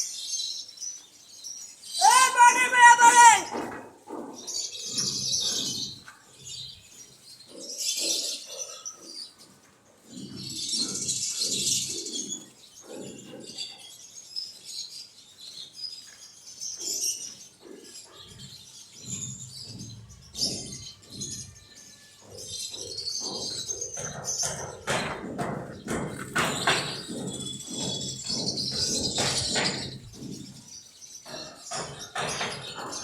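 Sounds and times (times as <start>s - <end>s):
knocks: 18.4s - 33.0s.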